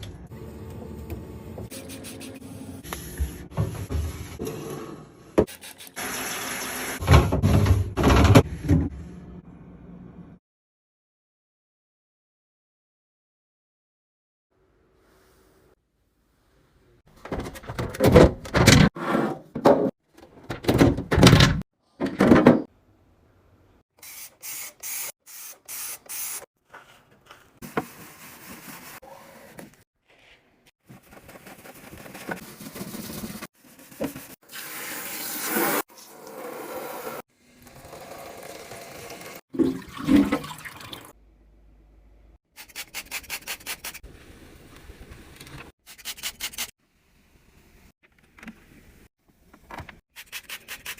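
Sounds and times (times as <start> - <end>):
knocks and clunks: 17.2 - 18.9, 19.5 - 22.7
water pouring: 34.5 - 41.2.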